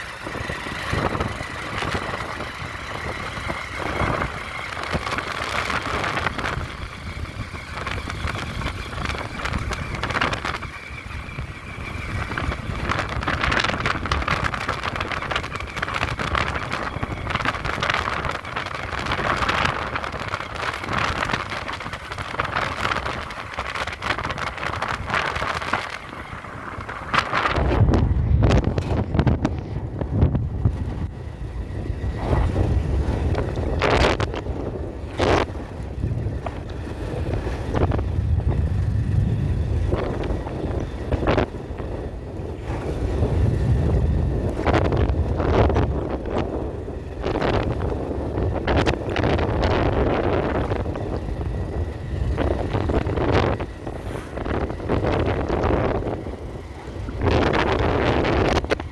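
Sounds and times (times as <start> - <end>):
wind rumble on microphone: 0.0 - 58.9
brief rushing swishes: 53.8 - 54.8.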